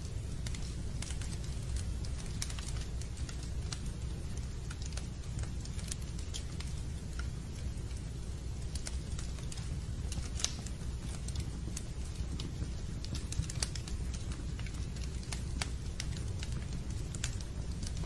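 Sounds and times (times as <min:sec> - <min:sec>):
fire crackling: 0:00.0 - 0:18.0.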